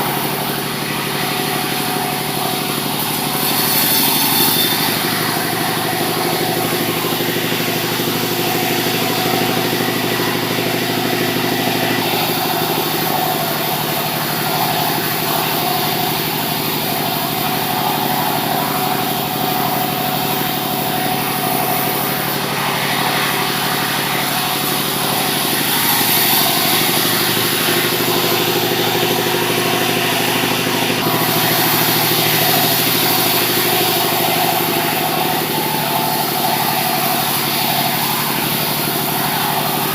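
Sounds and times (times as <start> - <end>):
engine-driven saw cutting timber: 0.0 - 39.9.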